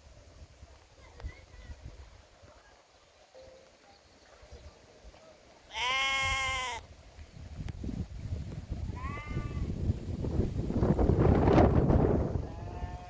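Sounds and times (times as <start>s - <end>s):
sheep bleating: 5.7s - 6.8s, 9.0s - 9.7s.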